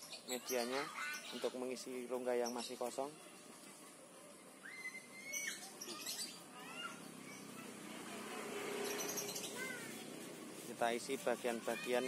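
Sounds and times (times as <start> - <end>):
small birds whistling and chirping: 0.0 - 3.2, 4.6 - 7.6, 8.7 - 10.1
hands rustling dry potting mix: 9.4 - 12.0.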